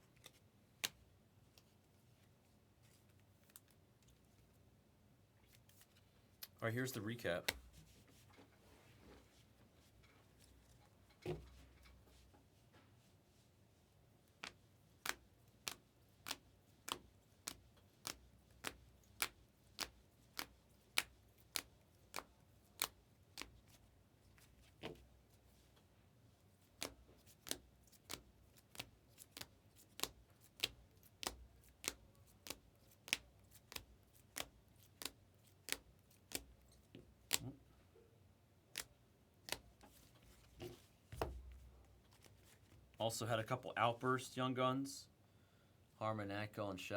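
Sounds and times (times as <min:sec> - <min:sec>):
cards clicking on a table: 0:26.8 - 0:36.6.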